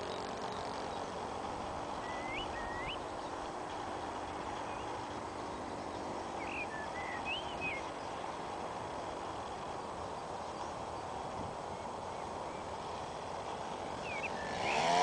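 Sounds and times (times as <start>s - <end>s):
small bird chirping: 0.0s - 3.6s, 4.3s - 8.3s, 11.8s - 15.0s.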